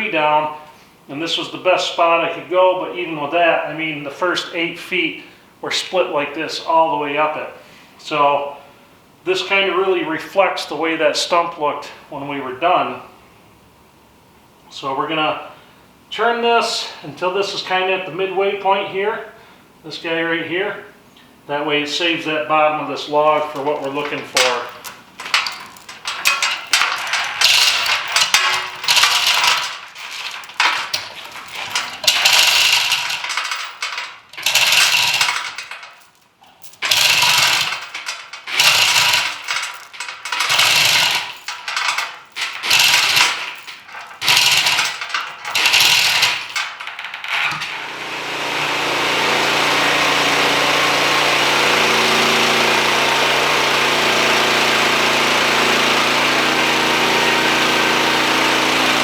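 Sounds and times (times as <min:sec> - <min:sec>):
metal chain rattling: 0:23.2 - 0:47.7
sawmill engine running: 0:23.3 - 0:33.5, 0:40.5 - 0:41.2, 0:47.6 - 0:59.0.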